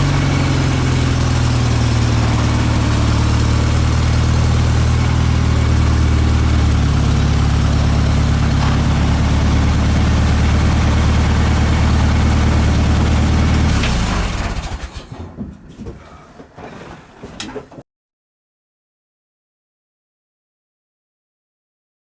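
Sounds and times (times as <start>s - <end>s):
truck engine idling: 0.0s - 15.2s.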